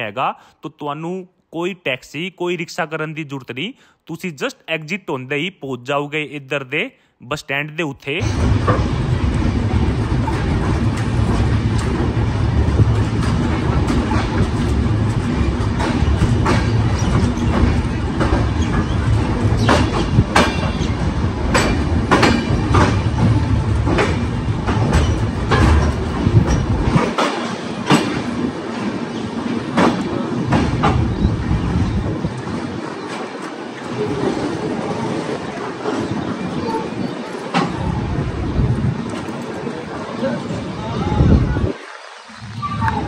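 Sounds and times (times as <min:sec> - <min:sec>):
wheels clacking over track joints: 0:08.2 - 0:40.8
train running gear rumble: 0:08.2 - 0:41.7.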